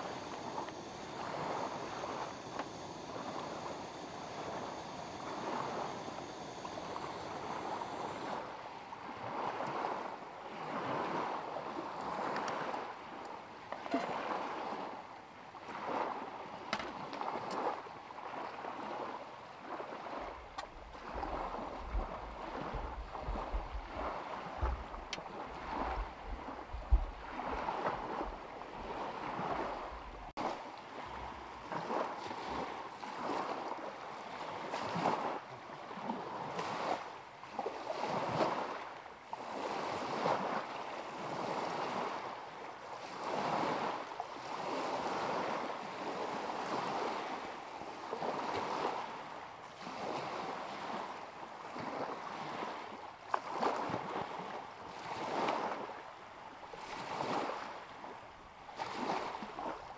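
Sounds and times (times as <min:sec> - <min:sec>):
waves lapping against shore: 0:00.0 - 0:59.9
wind rumbling on microphone: 0:20.3 - 0:30.3.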